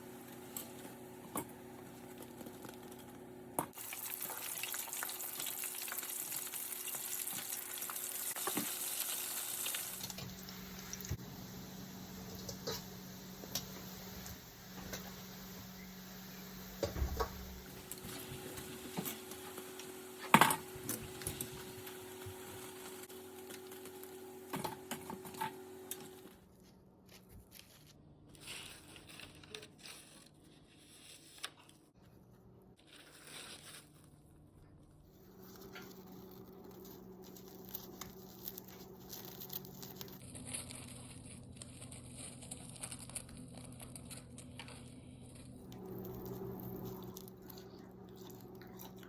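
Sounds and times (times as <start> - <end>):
faint steady hum: 9.3 - 28.3.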